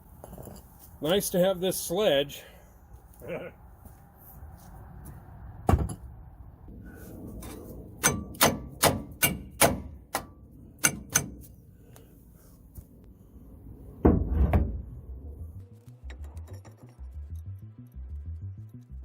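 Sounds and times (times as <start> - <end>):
sledgehammer striking metal axle: 7.4 - 11.6.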